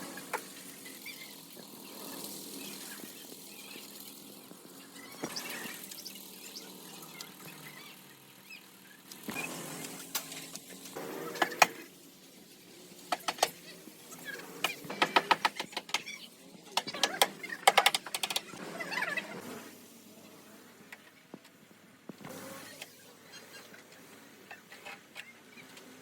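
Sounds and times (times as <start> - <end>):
mechanical clicks and rattling: 13.1 - 13.6, 16.8 - 18.6.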